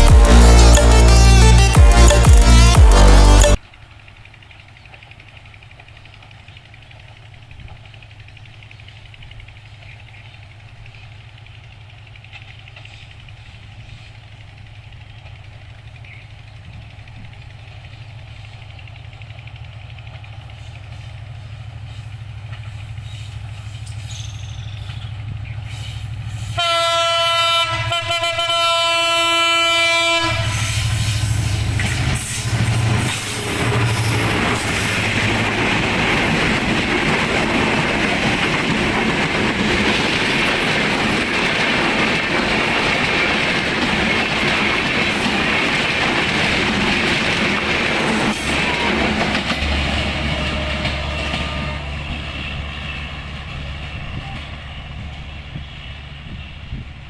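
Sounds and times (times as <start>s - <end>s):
train horn blast: 0.0s - 3.6s, 25.7s - 36.0s, 48.4s - 52.5s
diesel locomotive engine: 0.0s - 57.0s
train wheels rumbling and clattering: 5.1s - 57.0s.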